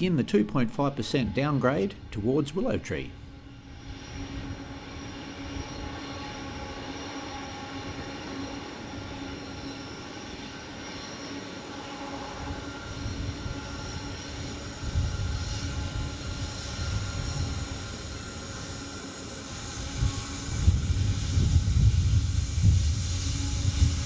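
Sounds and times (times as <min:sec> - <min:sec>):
train engine hum: 0:00.0 - 0:24.0.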